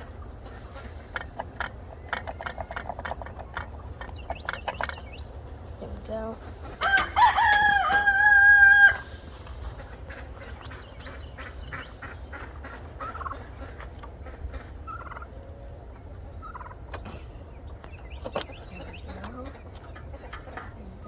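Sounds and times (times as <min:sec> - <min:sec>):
turkeys gobbling: 0:00.0 - 0:21.0
loud drawn-out bird call: 0:06.8 - 0:13.8.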